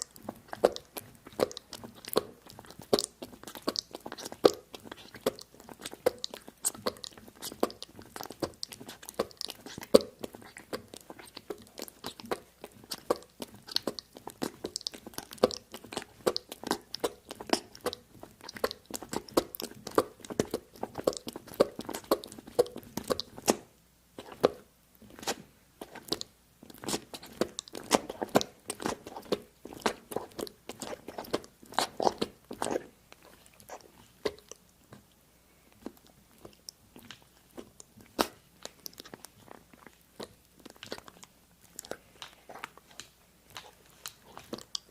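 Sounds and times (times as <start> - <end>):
chewing crisp food: 0.0 - 44.9.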